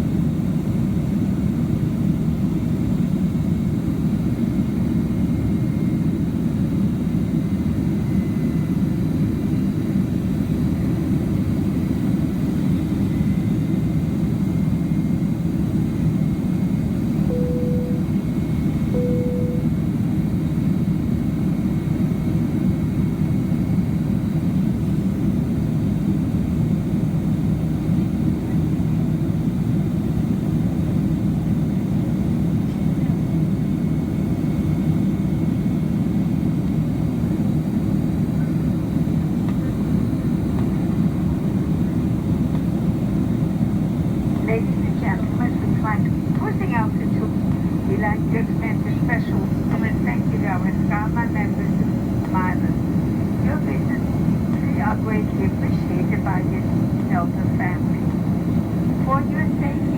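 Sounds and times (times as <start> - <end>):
jet engine roar in cabin: 0.0 - 59.9
short cabin tones: 17.2 - 18.2, 19.0 - 19.7.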